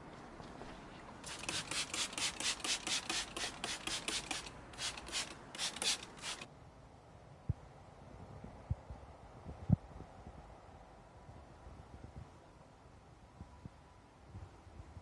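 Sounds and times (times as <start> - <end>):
brush scrubbing car wheel: 1.2 - 6.5.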